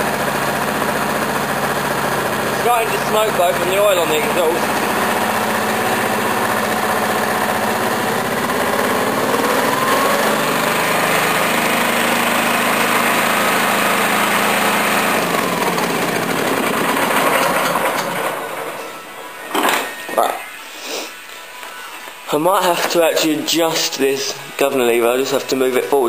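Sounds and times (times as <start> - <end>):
mower engine idling: 0.0 - 19.1.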